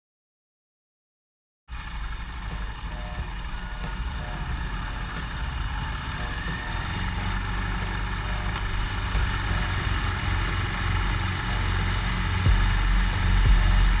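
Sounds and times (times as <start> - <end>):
motorcycle engine running: 1.7 - 14.0
road noise: 1.7 - 14.0.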